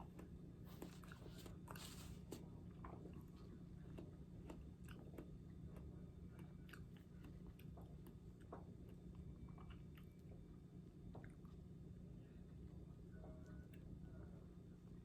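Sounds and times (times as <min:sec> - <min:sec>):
person chewing crunchy apple: 0:00.0 - 0:10.1
low steady hum: 0:00.0 - 0:15.0.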